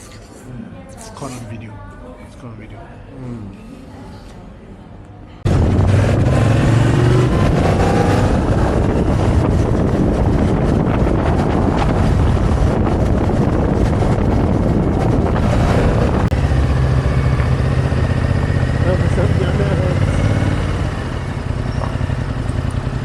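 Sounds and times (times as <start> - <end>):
wind noise on microphone: 5.4 - 18.6
motorcycle engine at speed: 5.4 - 23.0.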